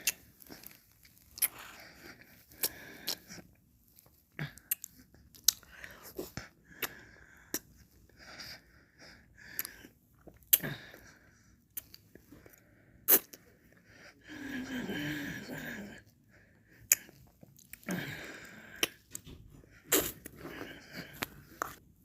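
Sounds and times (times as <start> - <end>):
lip smacks and clicks: 16.9 - 17.9.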